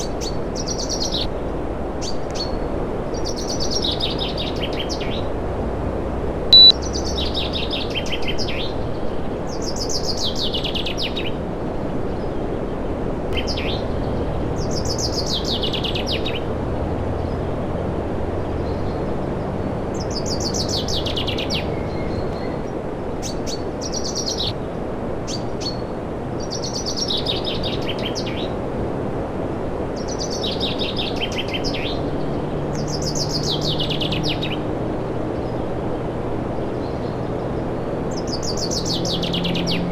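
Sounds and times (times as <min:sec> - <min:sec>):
short sharp beep: 0:06.6 - 0:06.8.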